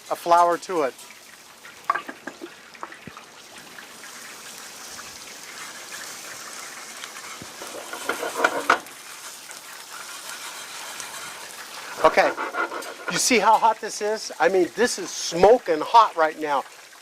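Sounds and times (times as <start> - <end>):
roux sizzling in a skillet: 0.0 - 17.0
whisk scraping a pan: 7.2 - 13.6.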